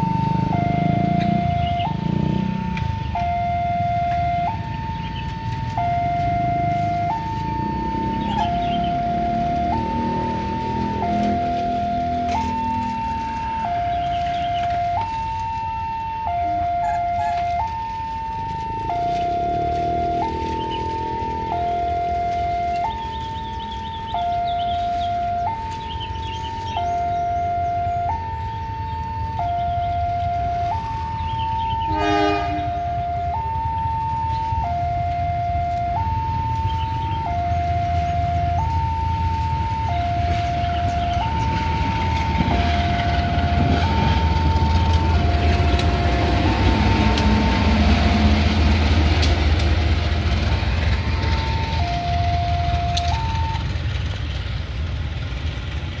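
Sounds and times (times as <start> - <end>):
level crossing two-tone alarm: 0.0 - 54.1
diesel locomotive rumble: 0.0 - 56.0
locomotive horn blast: 31.7 - 33.4, 39.9 - 53.8.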